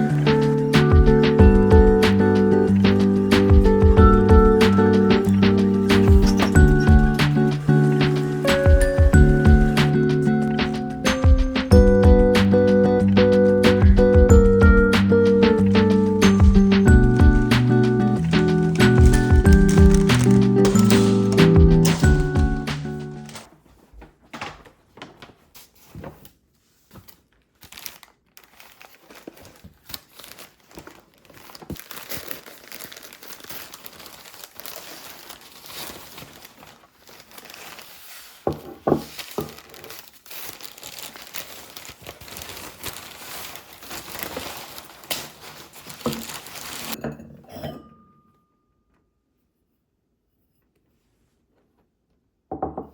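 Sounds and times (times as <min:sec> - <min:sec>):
packaging rustling and crinkling: 0:04.6 - 0:10.0, 0:15.5 - 0:47.0.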